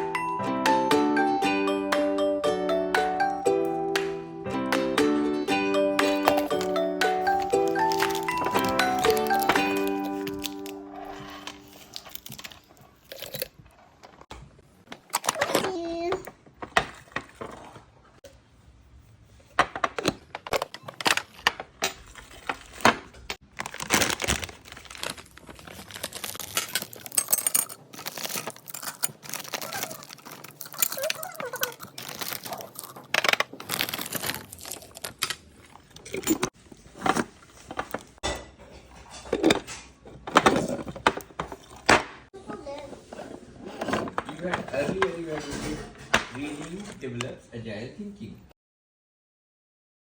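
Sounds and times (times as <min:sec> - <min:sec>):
plastic packaging crinkling: 0:06.0 - 0:14.0, 0:23.4 - 0:38.2.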